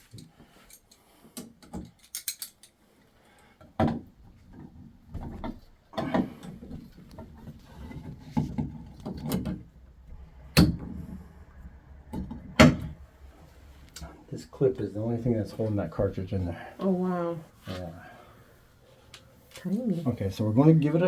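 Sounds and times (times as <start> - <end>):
tools clicking and scraping metal: 0.0 - 2.8.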